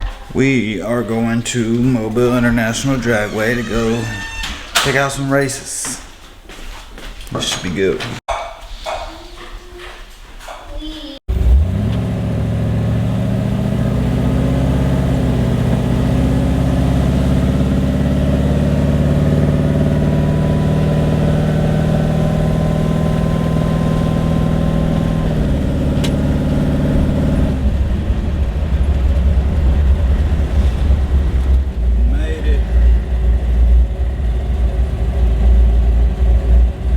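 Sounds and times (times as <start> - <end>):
car engine running: 11.3 - 36.9.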